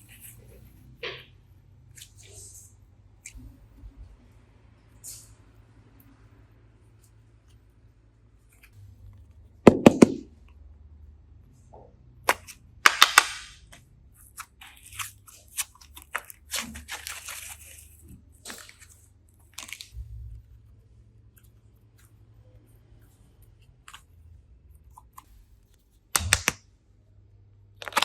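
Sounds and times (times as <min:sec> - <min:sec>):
sharp snaps: 0:26.2 - 0:26.6.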